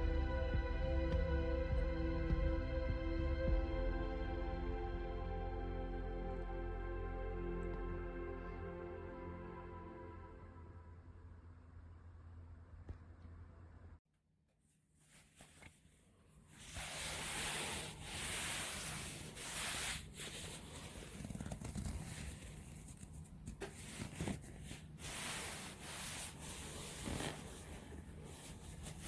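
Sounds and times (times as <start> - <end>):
bed sheet fabric rustling: 15.0 - 29.0.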